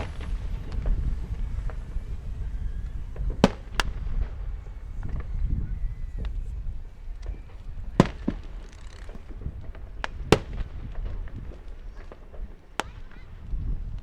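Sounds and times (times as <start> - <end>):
steady low rumble: 0.0 - 8.6
fireworks bangs: 0.0 - 14.0.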